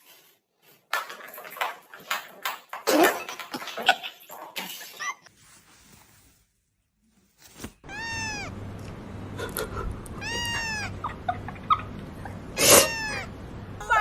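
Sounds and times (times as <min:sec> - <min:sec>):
low steady hum: 0:07.1 - 0:14.0
cat meowing: 0:07.8 - 0:08.6, 0:10.2 - 0:11.1, 0:12.6 - 0:13.4.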